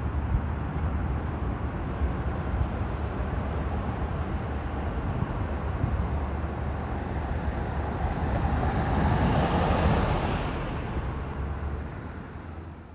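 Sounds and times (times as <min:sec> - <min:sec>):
low traffic rumble: 0:00.0 - 0:12.9
vehicle passing: 0:07.5 - 0:12.8.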